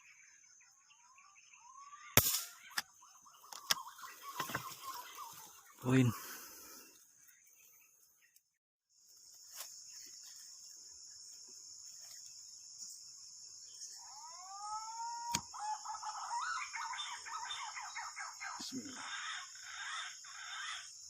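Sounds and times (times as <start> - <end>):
whistled bird call: 1.0 - 5.2
chattering bird notes: 1.8 - 6.2
sharp crack: 2.2 - 2.9
high-pitched insect drone: 9.0 - 21.0.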